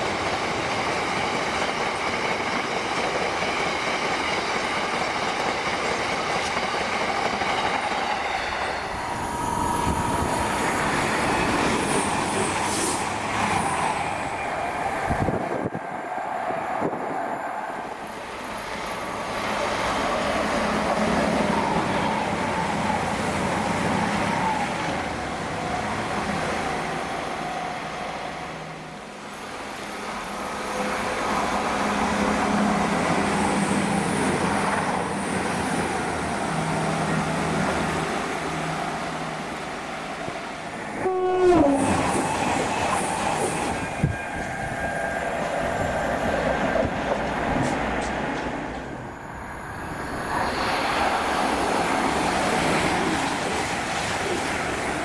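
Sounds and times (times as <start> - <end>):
diesel train passing: 0.0 - 55.0
train horn blast: 41.0 - 42.0.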